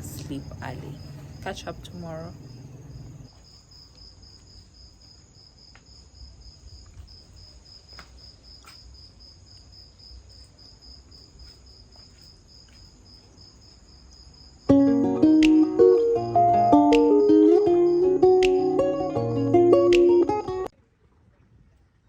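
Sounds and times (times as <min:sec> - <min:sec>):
crickets chirping: 0:00.0 - 0:20.7
guitar music: 0:14.7 - 0:20.7.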